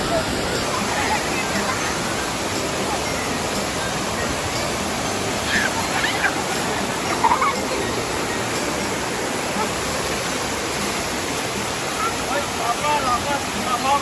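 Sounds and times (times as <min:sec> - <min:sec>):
waterfall rushing: 0:00.0 - 0:14.0
voices calling out: 0:00.6 - 0:10.4.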